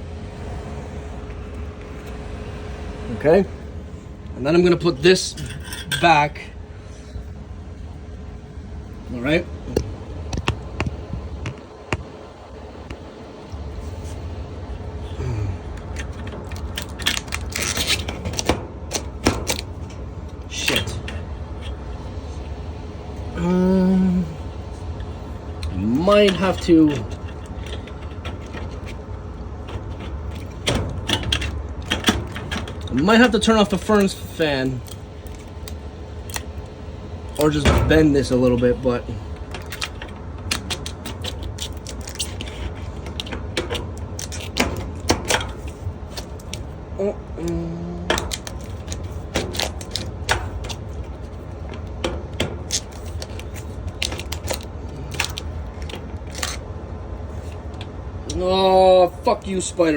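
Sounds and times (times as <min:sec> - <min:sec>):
furnace blower humming: 0:00.0 - 0:59.9
filter frame scraping metal housing: 0:05.1 - 0:06.2.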